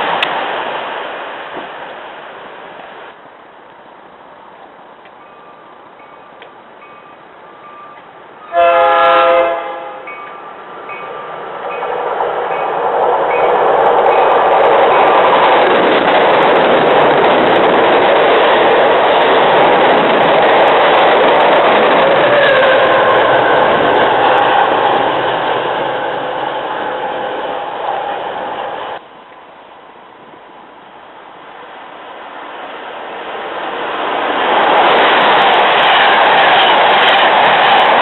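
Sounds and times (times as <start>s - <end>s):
train passing at speed: 0.0s - 38.0s
train horn blast: 8.5s - 10.2s, 22.3s - 27.4s.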